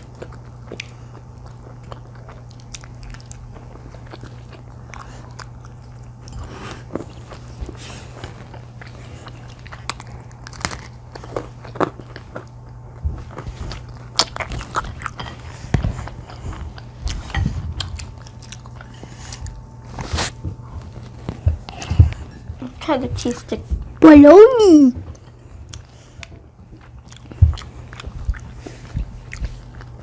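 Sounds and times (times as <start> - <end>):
chewing crunchy pizza crust: 0.0 - 22.7, 25.0 - 30.0
steady low hum: 0.0 - 30.0.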